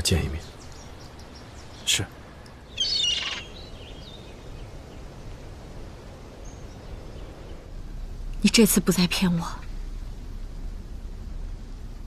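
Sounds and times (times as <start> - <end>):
small birds chirping: 0.0 - 9.8
low outdoor background: 0.0 - 12.0.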